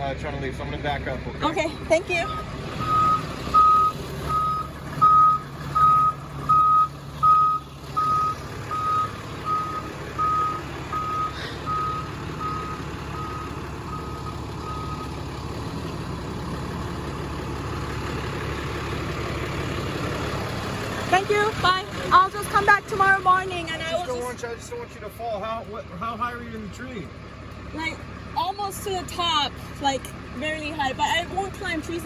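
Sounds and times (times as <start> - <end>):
engine rumble: 0.0 - 32.0
vehicle reversing alarm beeping: 1.9 - 15.3.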